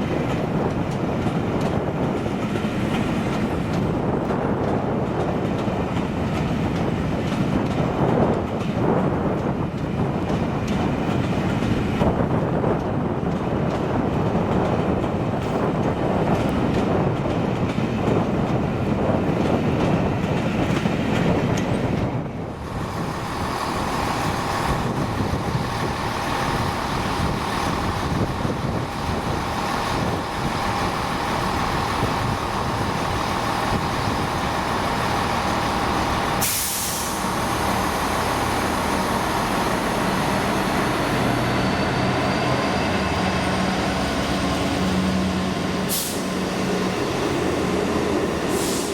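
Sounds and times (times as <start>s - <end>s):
train passing with rumble: 0.0s - 48.9s
short sharp hiss: 36.4s - 37.4s, 45.9s - 46.3s, 48.5s - 48.9s.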